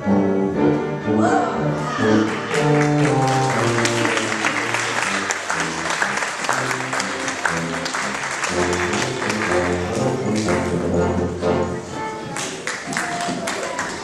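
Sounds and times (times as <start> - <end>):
instrumental music sustained notes: 0.0 - 12.4
audience applauding: 2.2 - 10.7, 12.4 - 14.0.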